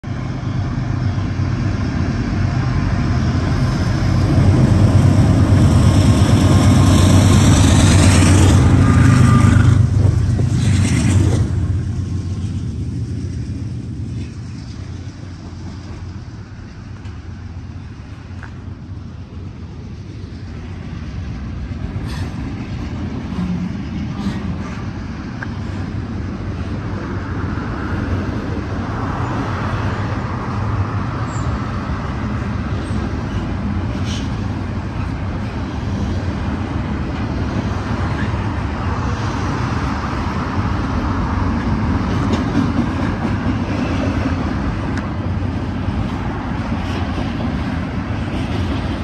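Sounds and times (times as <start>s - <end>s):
diesel locomotive engine rumble: 0.0s - 49.0s
freight cars rolling on rails: 0.0s - 49.0s.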